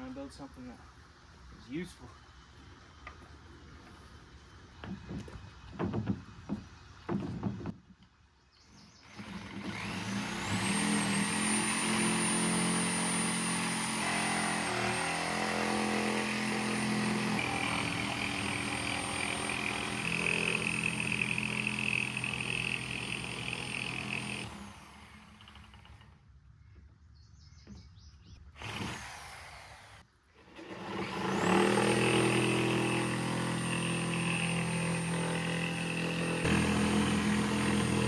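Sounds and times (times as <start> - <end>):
knocks: 4.8 - 7.8
power saw cutting board: 9.1 - 26.1, 28.6 - 38.0.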